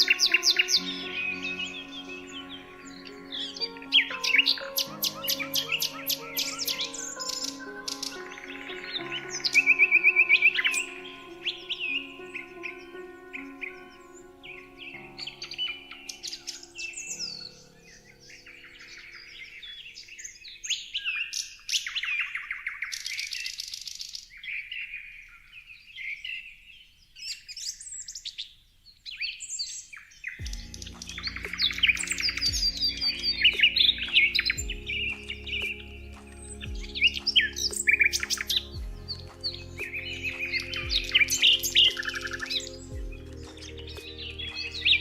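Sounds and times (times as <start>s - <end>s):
soft background music: 0.0s - 20.2s, 30.4s - 45.0s
songbirds chirping and trilling: 0.0s - 45.0s.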